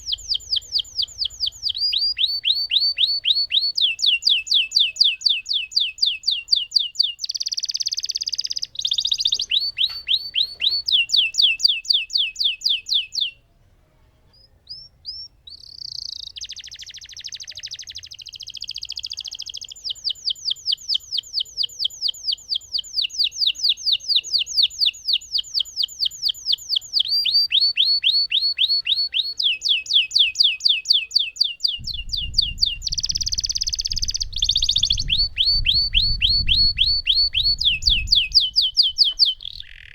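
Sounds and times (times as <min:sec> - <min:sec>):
canary singing: 0:00.0 - 0:13.4, 0:14.3 - 0:39.9
low rumble: 0:31.8 - 0:39.0.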